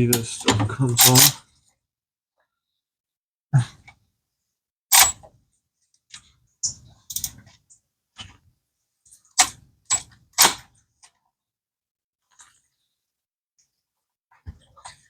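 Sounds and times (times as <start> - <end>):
hand tools and metal parts clinking: 7.1 - 7.4.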